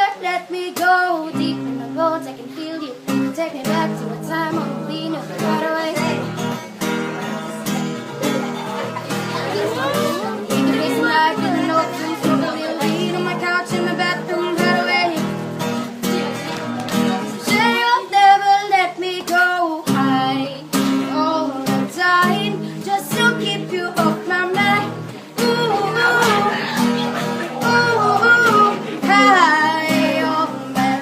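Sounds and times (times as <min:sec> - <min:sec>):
person singing: 0:00.0 - 0:08.4, 0:09.0 - 0:31.0
acoustic guitar strumming: 0:00.0 - 0:31.0.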